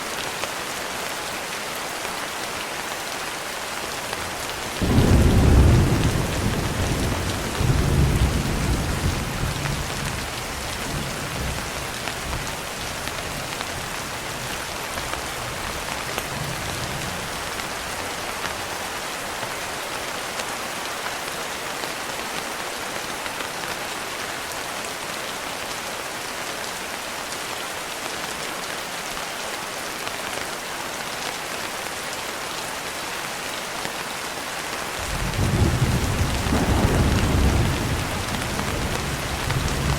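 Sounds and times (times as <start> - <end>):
rain pattering on a window: 0.2 - 24.8, 27.5 - 39.9
thunder rolling: 35.1 - 39.9.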